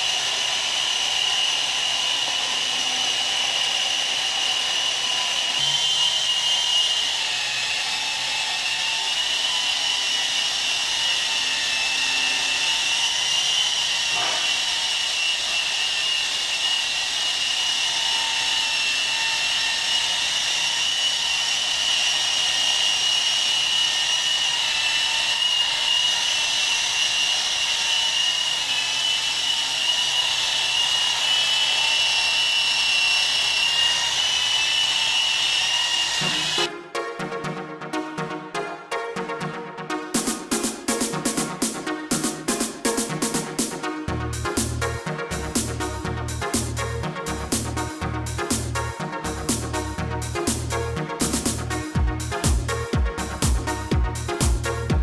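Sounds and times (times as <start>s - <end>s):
small motor high-pitched whine: 0.0s - 36.7s.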